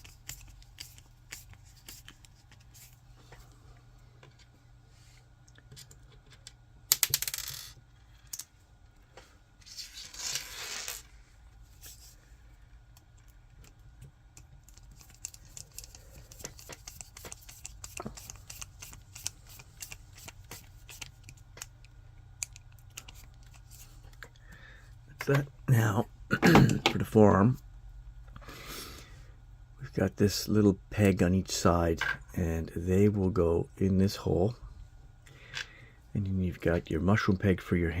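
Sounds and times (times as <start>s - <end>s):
plastic parts and screws clicking: 13.0s - 24.4s.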